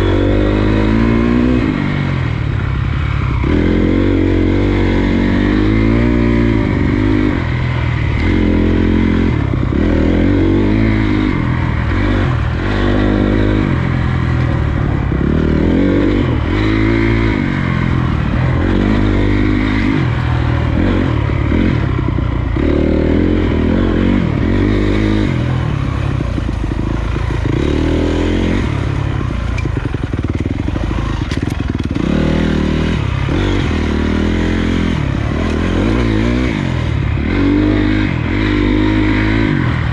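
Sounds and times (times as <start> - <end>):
dirt bike engine revving: 0.0 - 39.9
bike rattling over rough ground: 24.3 - 36.8.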